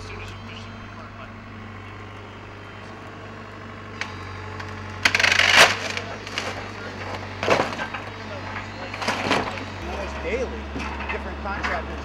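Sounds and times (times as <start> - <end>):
excavator engine running: 0.0 - 12.0
wood cracking: 1.0 - 11.9
timber splintering and crushing: 3.1 - 12.0.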